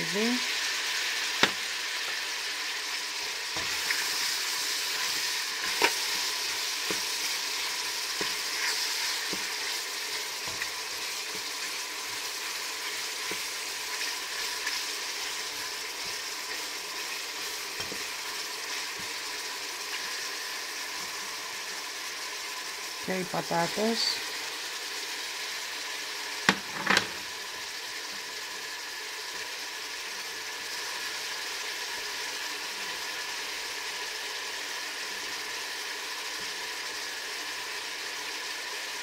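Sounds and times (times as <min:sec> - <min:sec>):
onion sizzling in oil: 0:00.0 - 0:39.0.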